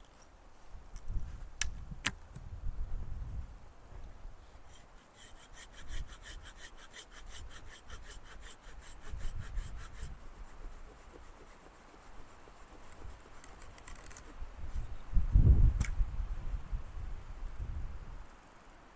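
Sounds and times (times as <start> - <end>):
hand saw cutting wood: 4.6 - 14.4.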